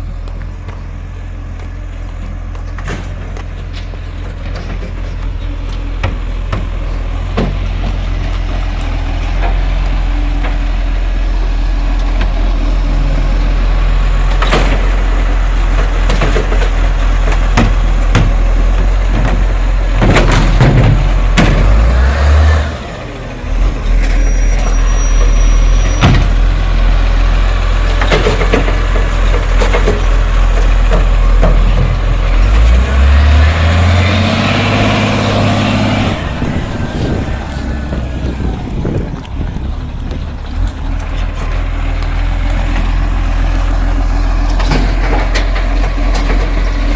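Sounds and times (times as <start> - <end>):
garbage truck engine running: 0.0 - 46.9
clanks and bangs: 14.3 - 22.0, 27.9 - 32.8.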